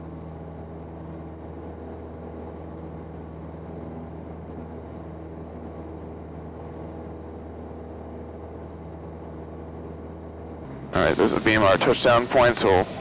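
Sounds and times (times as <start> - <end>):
small plane engine droning: 0.0 - 13.0.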